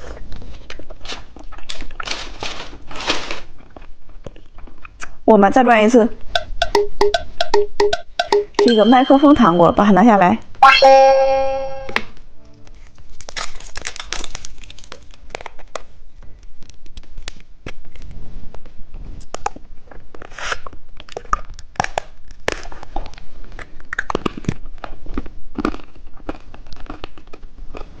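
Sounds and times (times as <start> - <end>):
plastic wrapper tearing and crinkling: 1.0 - 3.7, 12.8 - 18.0.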